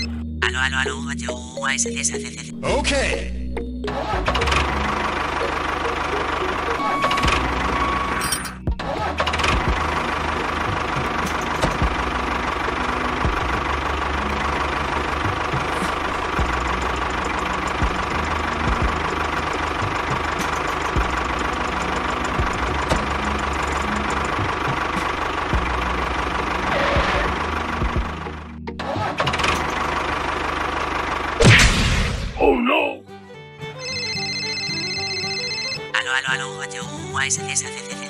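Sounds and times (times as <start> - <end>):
small engine chugging: 4.2 - 8.2, 9.2 - 28.5, 29.2 - 31.4.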